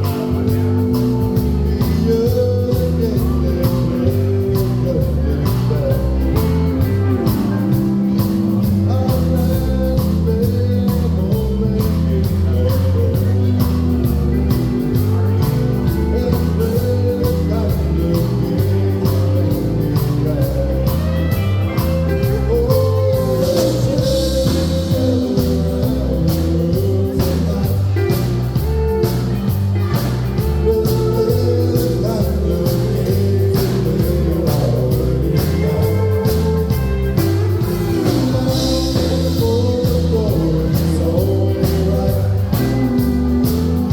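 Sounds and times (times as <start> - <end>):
bass line: 0.0 - 43.9
country band playing: 0.0 - 43.9
lead vocal singing: 0.0 - 43.9
steady drum beat: 0.0 - 43.9.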